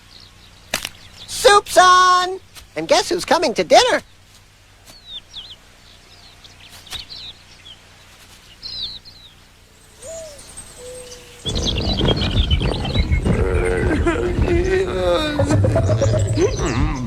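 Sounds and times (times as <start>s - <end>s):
high falling bird chirps: 0.0s - 17.0s
low bird call: 4.9s - 17.0s.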